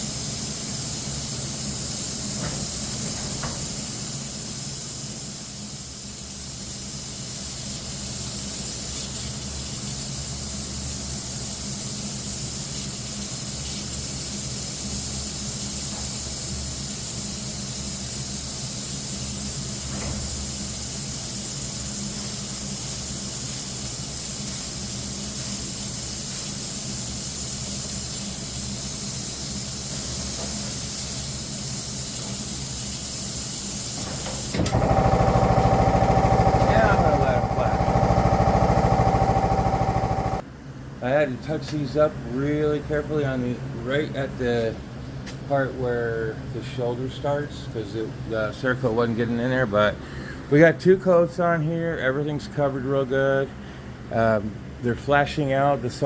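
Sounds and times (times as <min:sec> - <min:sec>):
spray gun hissing: 0:00.0 - 0:40.4.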